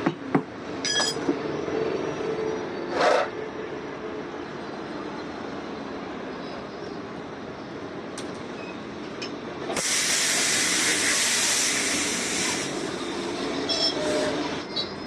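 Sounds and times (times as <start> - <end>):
compressed air hissing: 9.8 - 13.4.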